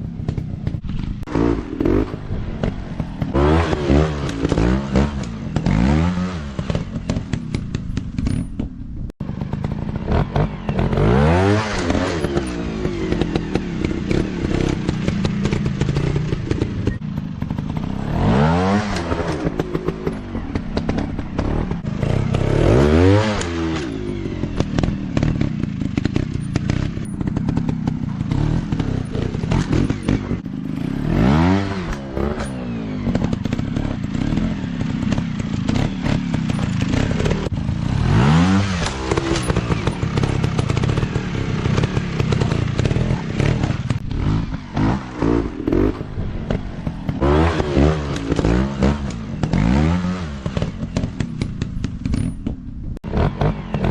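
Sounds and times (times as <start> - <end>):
dirt bike engines revving: 0.0 - 8.4, 9.2 - 53.9
rattling clatter: 23.4 - 31.1, 31.8 - 37.9, 50.5 - 52.8.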